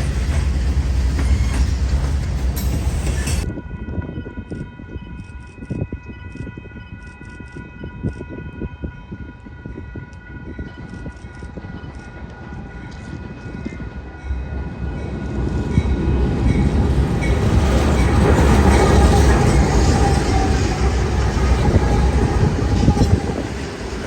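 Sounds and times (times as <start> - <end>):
diesel locomotive rumble: 0.0 - 3.5, 13.4 - 24.0
train wheels on rails: 0.0 - 3.5, 10.4 - 24.0.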